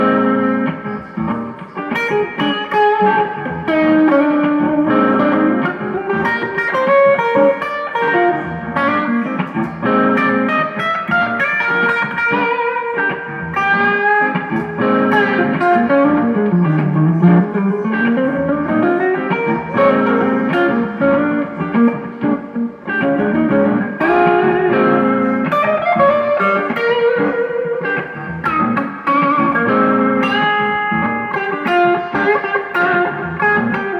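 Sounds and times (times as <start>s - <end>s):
guitar playing bluesy riff: 0.0s - 33.9s.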